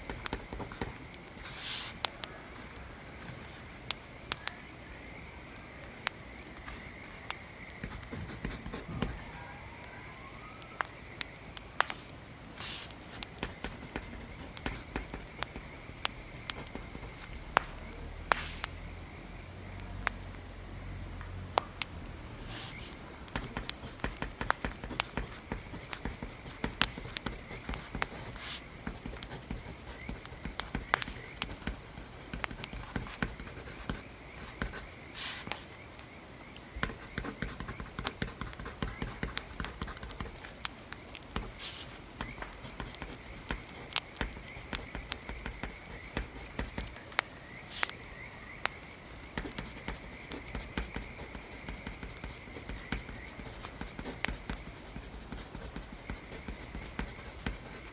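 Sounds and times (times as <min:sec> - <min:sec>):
writing on paper: 0:00.0 - 0:02.0, 0:07.8 - 0:09.4, 0:12.6 - 0:18.7, 0:22.5 - 0:35.7, 0:36.7 - 0:47.0, 0:49.4 - 0:57.9.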